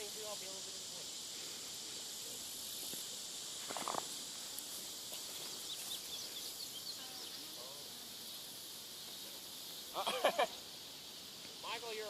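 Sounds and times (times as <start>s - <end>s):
high insect drone: 0.0s - 12.0s
bird chirps: 5.6s - 7.5s.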